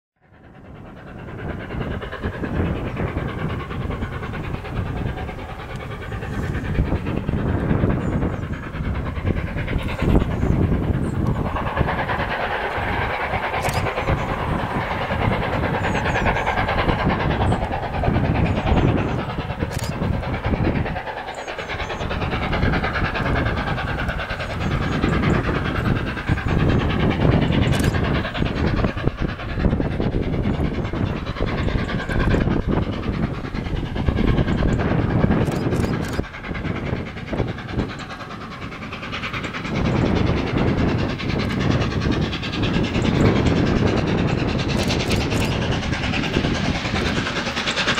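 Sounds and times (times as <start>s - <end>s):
steam locomotive exhaust: 0.2s - 47.9s
train wheels on rails: 0.2s - 47.9s
sharp clicks: 13.3s - 14.4s, 27.7s - 28.0s, 44.7s - 45.9s.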